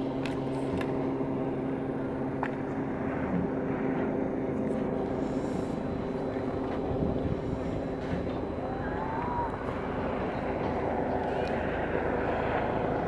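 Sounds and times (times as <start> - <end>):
electric railcar humming: 5.0 - 13.0.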